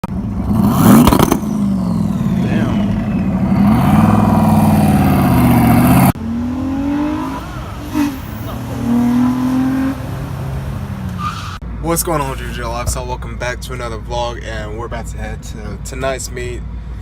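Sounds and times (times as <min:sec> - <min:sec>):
engine crackles: 0:00.0 - 0:17.0
quieter engine at low revs: 0:00.0 - 0:17.0
car engine revving hard: 0:00.4 - 0:11.3.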